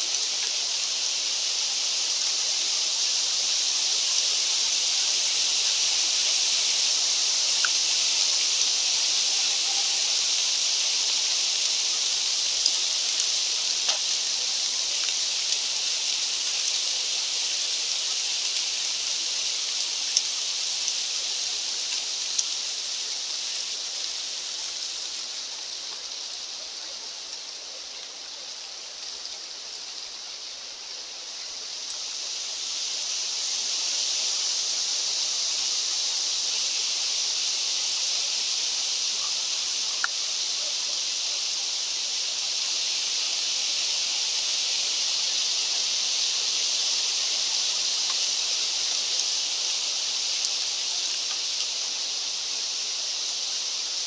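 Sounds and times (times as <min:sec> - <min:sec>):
wind through trees: 0:00.0 - 0:54.0
faint ticks: 0:12.4 - 0:16.8, 0:19.8 - 0:21.0, 0:21.8 - 0:22.6, 0:39.2 - 0:40.2, 0:48.0 - 0:49.4, 0:50.3 - 0:51.7.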